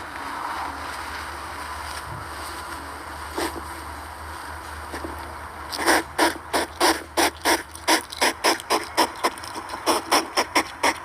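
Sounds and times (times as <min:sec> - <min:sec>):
hedgehog clicking: 0:05.7 - 0:11.0.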